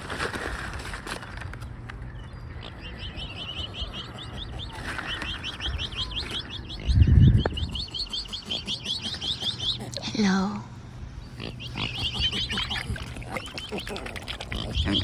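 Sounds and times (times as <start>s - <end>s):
bird chirping rapidly: 2.2s - 10.0s, 11.1s - 15.0s.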